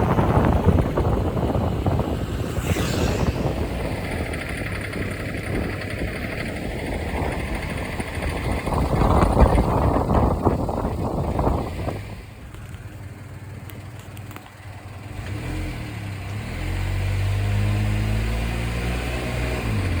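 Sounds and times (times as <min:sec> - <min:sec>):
engine running with rattling knock: 0:03.6 - 0:17.4.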